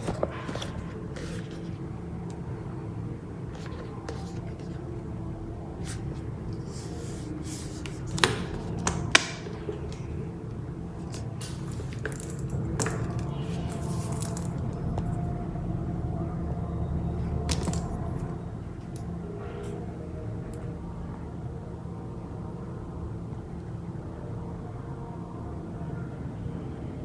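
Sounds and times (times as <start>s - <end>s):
handbag clasp clicks: 7.9s - 10.1s, 11.1s - 15.1s, 17.5s - 18.2s.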